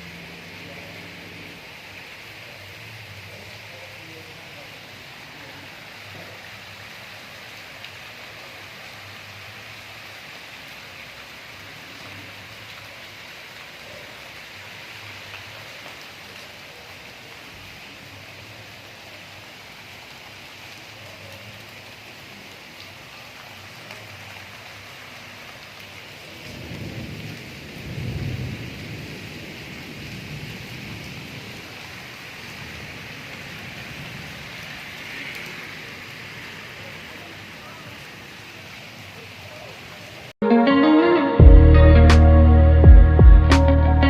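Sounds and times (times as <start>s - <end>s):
heavy rain hissing: 0.0s - 40.4s
thunder rumble: 26.4s - 31.8s.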